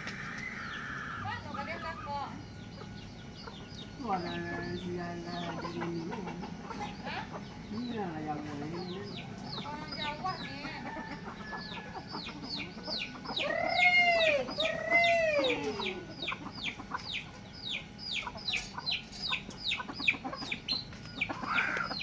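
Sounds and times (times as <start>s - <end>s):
chicken calling: 0.0s - 22.0s
chicks peeping: 0.0s - 22.0s.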